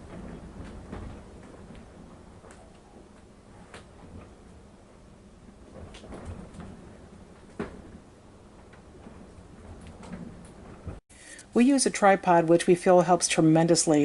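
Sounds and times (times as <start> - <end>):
strong wind buffeting trailer: 0.0 - 11.0
trailer knocks and creaks: 0.0 - 11.0.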